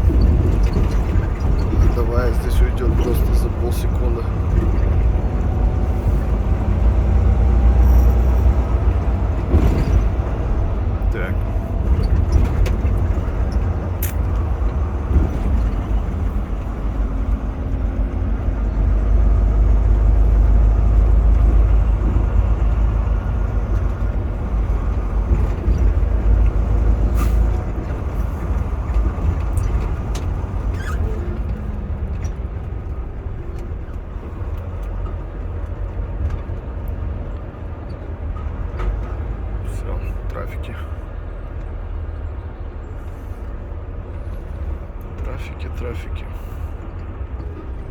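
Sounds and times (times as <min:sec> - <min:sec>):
truck engine and road rumble: 0:00.0 - 0:47.9
sharp clicks: 0:14.0 - 0:14.5.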